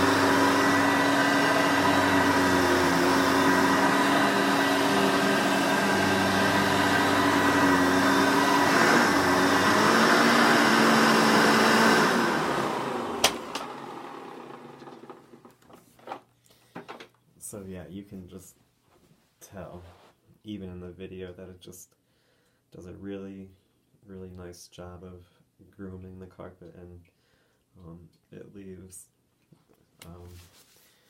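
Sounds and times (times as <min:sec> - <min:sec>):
vacuum cleaner motor running: 0:00.0 - 0:15.5
vacuum motor winding down: 0:00.0 - 0:15.5.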